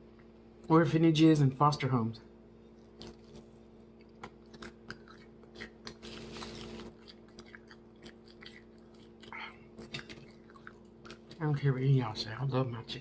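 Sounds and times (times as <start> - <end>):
steady low hum: 0.0 - 13.0
chewing crunchy fried chicken: 2.7 - 11.7.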